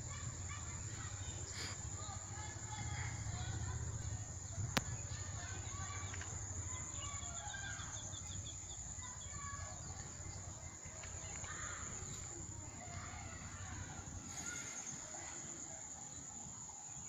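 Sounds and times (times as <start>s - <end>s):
birds chirping and calling: 0.2s - 16.5s.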